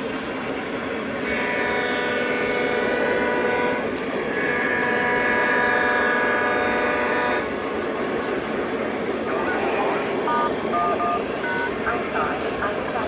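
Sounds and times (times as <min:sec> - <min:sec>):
model locomotive horn blasts: 0:01.2 - 0:03.8, 0:04.4 - 0:07.5.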